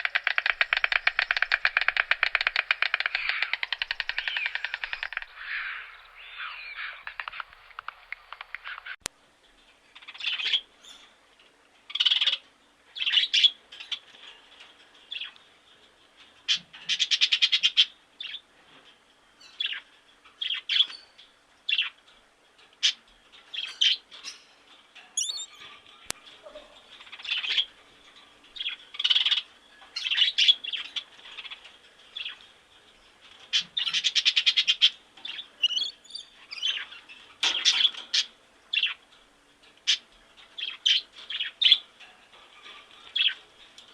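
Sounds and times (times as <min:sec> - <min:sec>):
birds calling and chirping: 0:00.0 - 0:09.0, 0:25.2 - 0:39.0, 0:39.8 - 0:43.9
rapid rattling bird calls: 0:00.0 - 0:09.0, 0:09.8 - 0:11.1, 0:16.5 - 0:18.4, 0:22.8 - 0:43.9.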